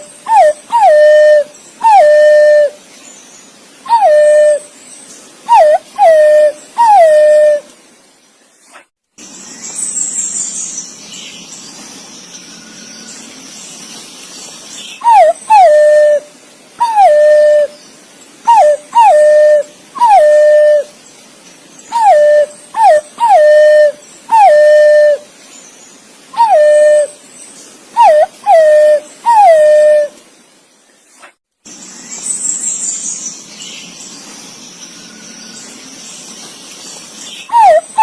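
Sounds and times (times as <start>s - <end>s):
pigeon whistled calls: 0.2s - 2.8s, 3.9s - 4.7s, 15.0s - 16.2s, 16.8s - 17.8s, 18.5s - 20.9s, 21.9s - 25.2s, 26.4s - 27.2s, 28.0s - 30.1s, 37.5s - 38.0s.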